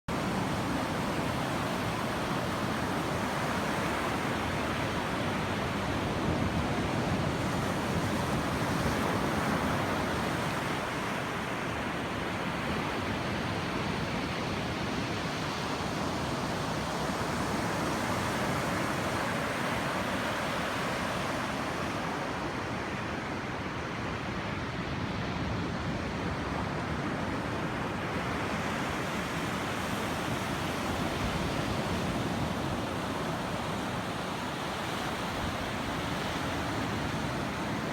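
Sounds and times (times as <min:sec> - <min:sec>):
surf washing onto beach: 0:27.6 - 0:37.9.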